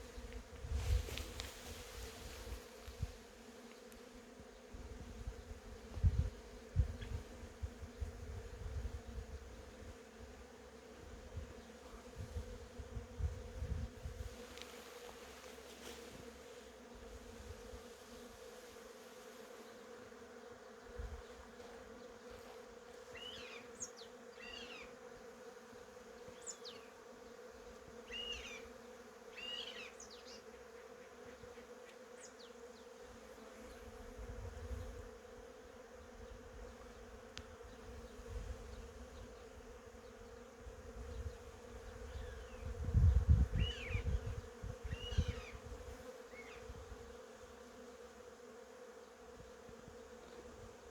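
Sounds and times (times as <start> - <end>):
honeybees buzzing: 0.0 - 50.9.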